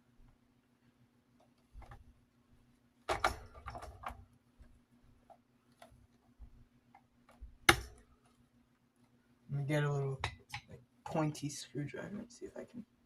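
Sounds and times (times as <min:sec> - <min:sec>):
fan parts clicking and rattling: 0:03.0 - 0:09.1, 0:09.7 - 0:11.3.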